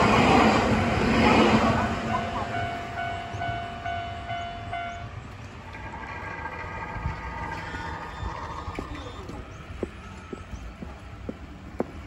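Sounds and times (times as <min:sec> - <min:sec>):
electric train running over rails: 0:00.0 - 0:12.0
crossing warning bell ringing: 0:02.0 - 0:07.5.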